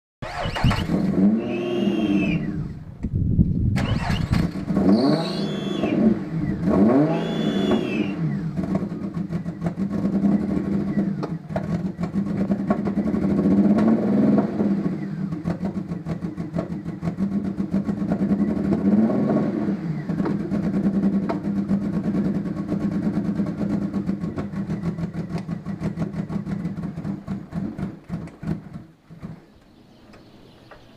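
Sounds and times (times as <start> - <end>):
car engine running roughly: 14.8 - 18.9, 20.0 - 28.9.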